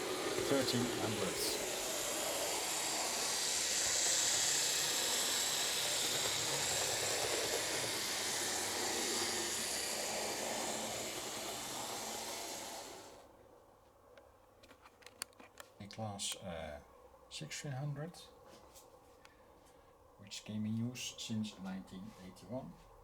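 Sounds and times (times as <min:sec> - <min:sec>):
model train running on track: 0:00.0 - 0:13.2.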